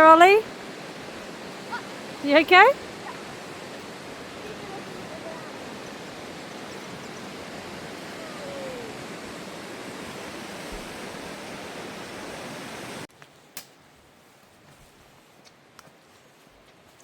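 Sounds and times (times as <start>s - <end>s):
river rushing: 0.0s - 13.1s.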